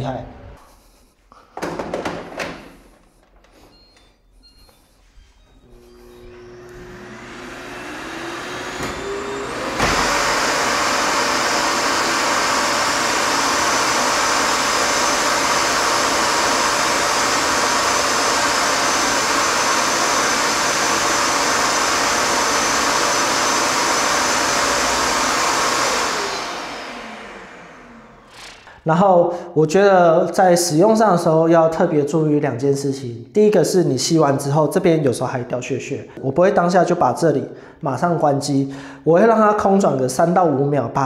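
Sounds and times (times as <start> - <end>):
vacuum cleaner motor whining: 2.8 - 28.8.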